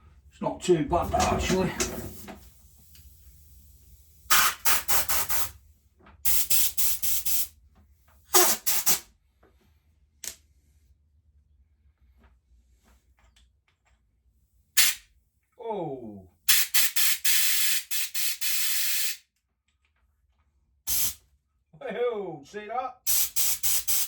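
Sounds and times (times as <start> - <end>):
pressurised spray hissing bursts: 3.5 - 5.6, 6.3 - 7.5, 8.3 - 9.1, 14.8 - 15.0, 16.5 - 19.2, 20.9 - 21.2, 23.1 - 24.0.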